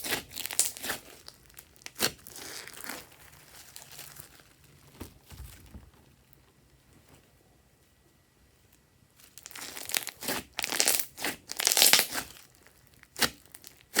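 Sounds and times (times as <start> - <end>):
slime squishing and popping: 9.4 - 12.4.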